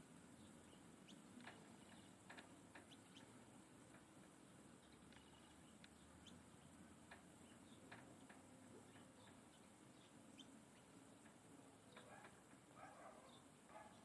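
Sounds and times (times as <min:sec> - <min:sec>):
low steady hiss: 0:00.0 - 0:14.0
faint bird chirps: 0:04.8 - 0:06.8, 0:07.4 - 0:11.0, 0:11.8 - 0:14.0.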